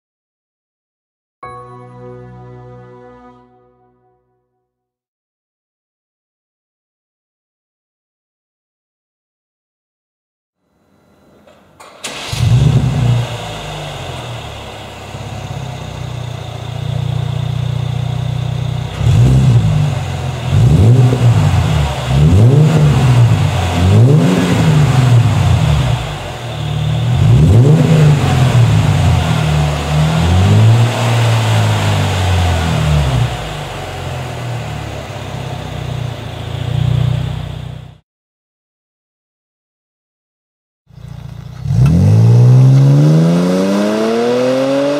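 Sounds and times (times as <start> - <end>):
car engine idling and revving: 11.4 - 38.0, 40.9 - 44.9.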